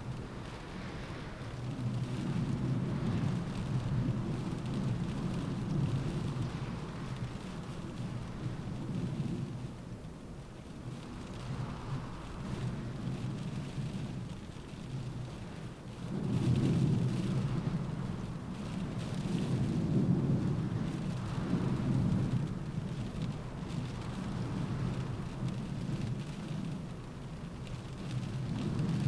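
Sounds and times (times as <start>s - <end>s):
rain pattering on window: 0.0s - 29.0s
wind gusts: 0.0s - 29.0s.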